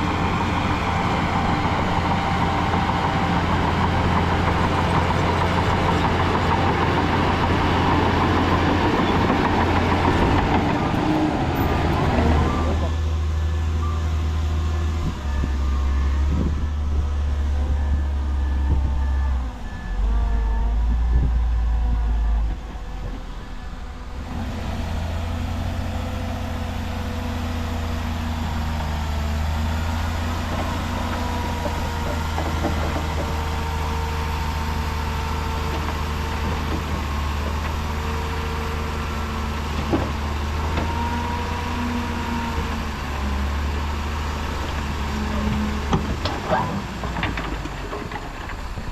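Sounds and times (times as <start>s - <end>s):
heavy diesel machinery rumbling: 0.0s - 48.9s
reversing alarm beeping: 12.2s - 22.5s.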